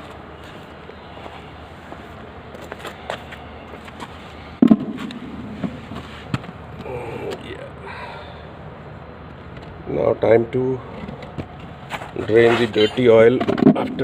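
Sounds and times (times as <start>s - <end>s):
loud thud: 4.6s - 6.1s.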